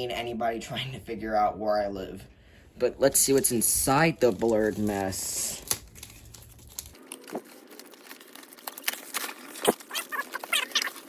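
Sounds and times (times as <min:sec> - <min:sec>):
packaging crinkling and rustling: 0:03.3 - 0:11.0.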